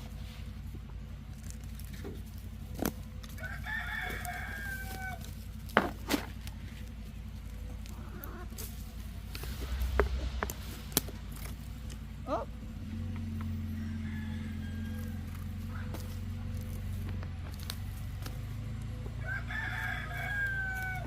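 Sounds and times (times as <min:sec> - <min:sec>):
steady low hum: 0:00.0 - 0:21.0
rooster crowing: 0:03.2 - 0:05.5, 0:13.3 - 0:16.1, 0:18.9 - 0:21.0.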